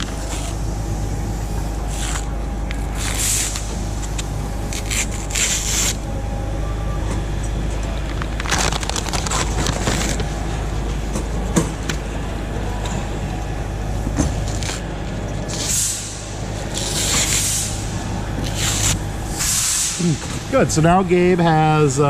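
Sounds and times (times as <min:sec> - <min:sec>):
low hum: 0:00.0 - 0:22.0
peel ply tearing off fiberglass: 0:02.9 - 0:06.0, 0:16.7 - 0:17.8, 0:18.4 - 0:19.8.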